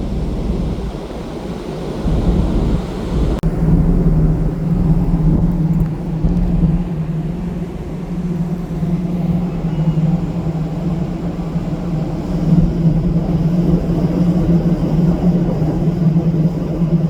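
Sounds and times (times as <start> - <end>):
ship engines humming: 0.0 - 17.0.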